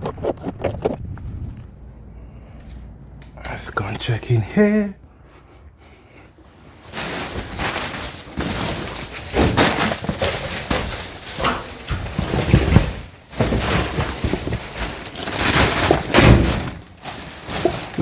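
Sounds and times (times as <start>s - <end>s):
wind buffeting microphone: 0.0s - 2.2s.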